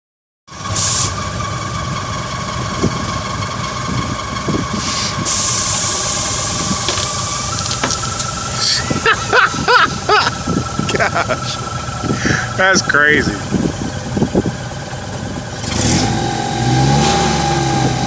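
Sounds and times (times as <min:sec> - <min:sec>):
vehicle engine running: 0:00.5 - 0:18.0
loud hissing: 0:04.7 - 0:12.6.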